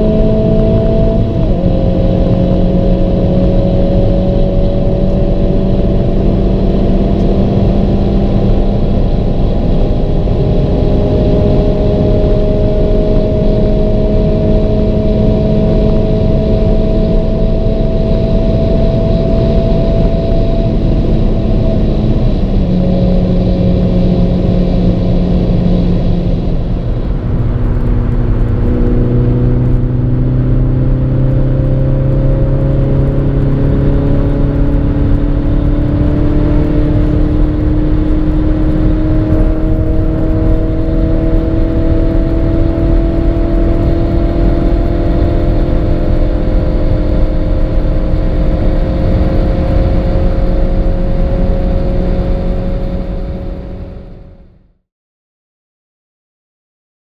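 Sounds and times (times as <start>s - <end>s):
car engine at full throttle: 0.0s - 54.8s
wind and road noise: 0.0s - 54.8s.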